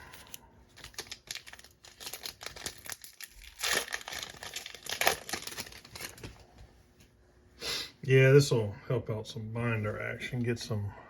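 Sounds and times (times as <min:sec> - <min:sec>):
plastic wrapper crinkling and tearing: 0:00.2 - 0:06.3.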